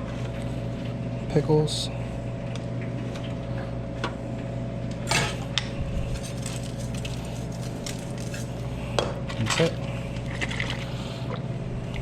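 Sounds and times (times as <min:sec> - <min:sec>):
kitchen hum: 0:01.3 - 0:11.3
utensils and dishes clinking: 0:05.1 - 0:05.5, 0:06.1 - 0:08.7
utensil scrape: 0:06.1 - 0:08.8.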